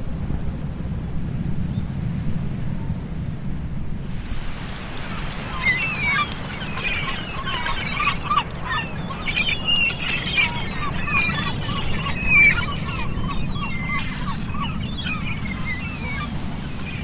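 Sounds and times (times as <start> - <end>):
low rumble of wind: 0.0 - 17.0
flock of birds calling: 4.3 - 17.0.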